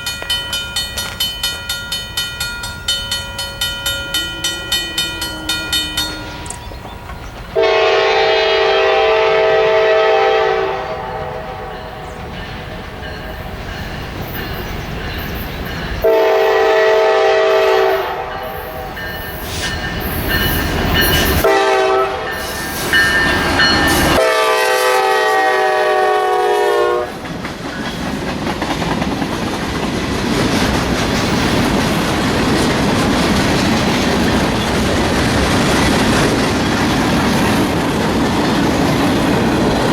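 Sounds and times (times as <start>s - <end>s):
train wheels rumbling on rails: 0.0s - 39.9s
locomotive air horn blasts: 7.6s - 12.0s, 16.0s - 19.0s, 21.4s - 22.6s, 23.5s - 27.2s.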